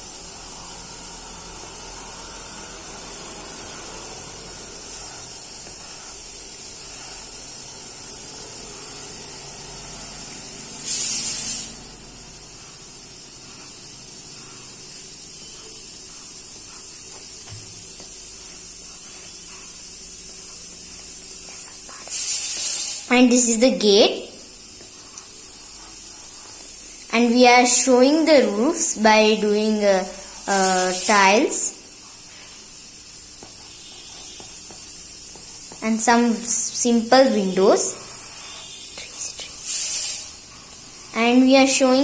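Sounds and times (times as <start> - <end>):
high-pitched hiss: 0.0 - 42.0.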